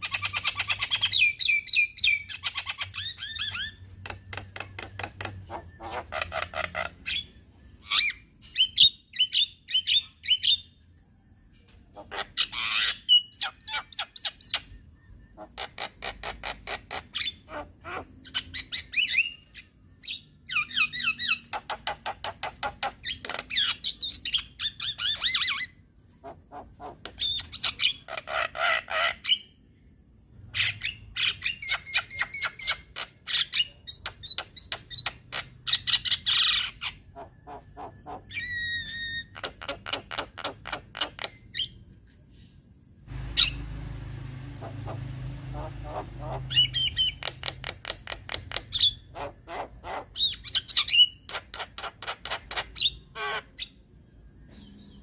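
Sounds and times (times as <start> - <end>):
myna clicking and chattering song: 4.0 - 6.9, 44.6 - 48.8
low steady hum: 42.2 - 47.6.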